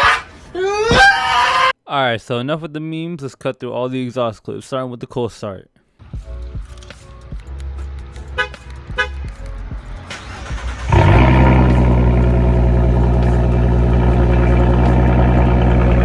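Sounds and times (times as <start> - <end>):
car engine starting and idling: 10.0 - 16.0.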